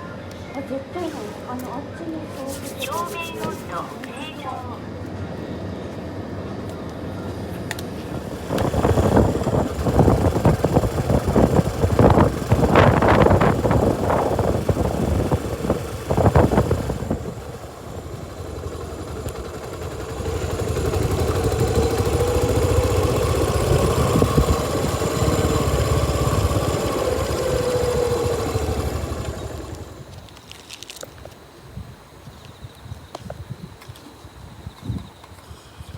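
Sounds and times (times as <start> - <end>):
motorcycle engine running: 8.2 - 30.3.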